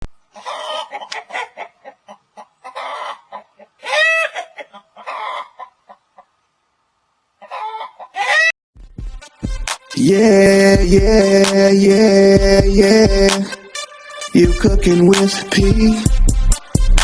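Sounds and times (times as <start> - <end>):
chickens clucking: 0.0 - 6.6, 7.3 - 8.6
chickens squawking: 0.3 - 6.5, 7.3 - 8.6.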